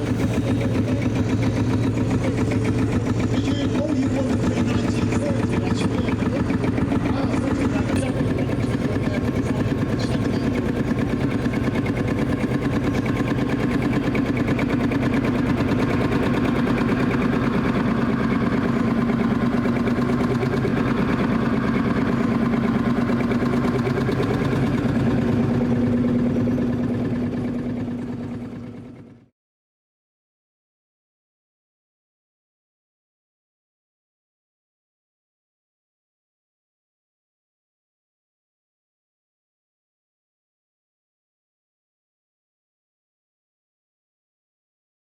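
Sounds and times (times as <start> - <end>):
tractor engine running: 0.0 - 29.3.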